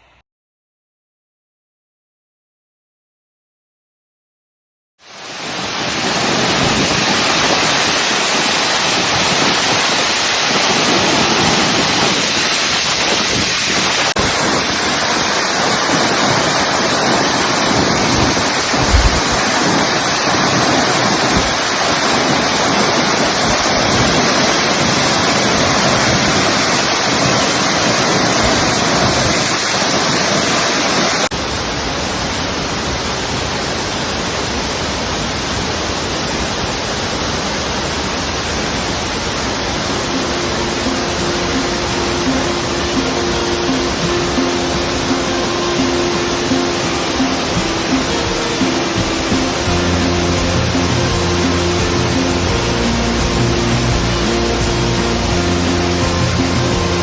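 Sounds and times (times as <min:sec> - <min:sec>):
waterfall rushing into pool: 0:05.0 - 0:57.0
low bump: 0:18.7 - 0:19.5.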